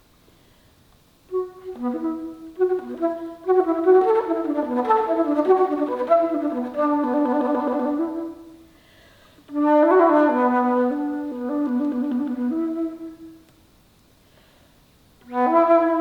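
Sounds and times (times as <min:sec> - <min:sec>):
alto flute playing quick notes: 0:01.3 - 0:08.7, 0:09.5 - 0:13.6, 0:15.2 - 0:16.0.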